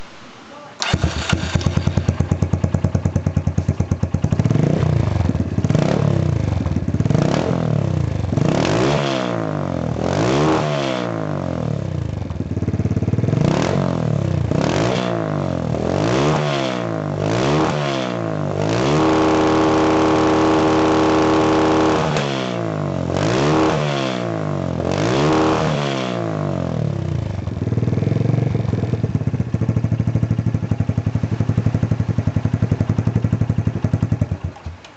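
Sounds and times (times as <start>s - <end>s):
motorcycle engine idling and revving: 0.8s - 34.9s.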